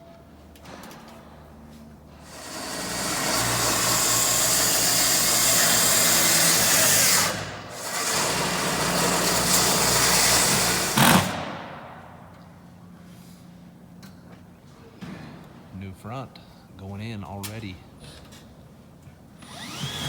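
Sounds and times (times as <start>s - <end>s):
power tool running: 2.2s - 11.5s, 19.4s - 20.0s.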